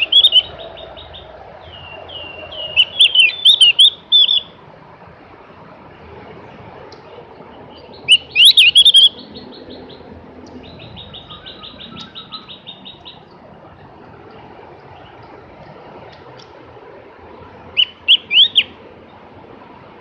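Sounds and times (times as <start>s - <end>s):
bird warbling and trilling: 0.0s - 4.6s, 7.5s - 13.4s, 17.7s - 18.8s.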